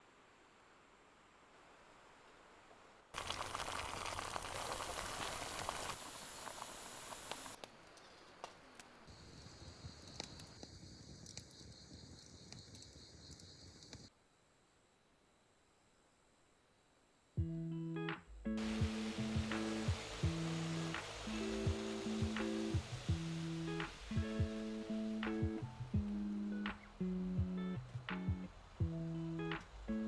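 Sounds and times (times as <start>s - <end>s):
campfire crackling and popping: 3.2s - 7.8s, 8.4s - 14.1s, 18.6s - 30.0s.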